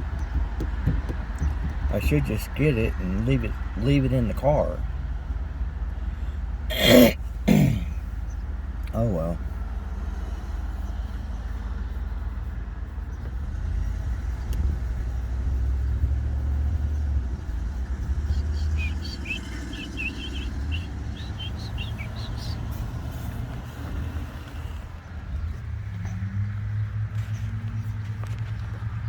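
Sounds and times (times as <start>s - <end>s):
bird chirping: 13.0s - 23.4s.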